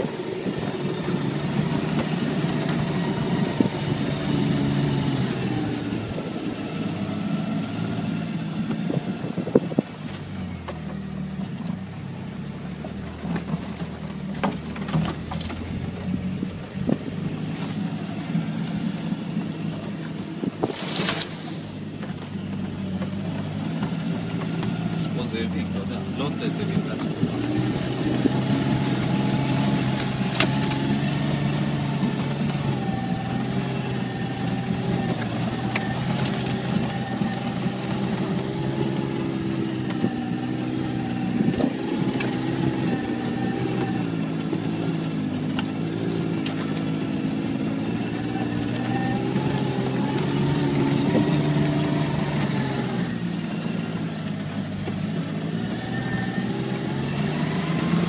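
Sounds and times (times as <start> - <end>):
car engine revving: 0.0 - 58.0
knocks and rattles from bumps: 8.8 - 28.6.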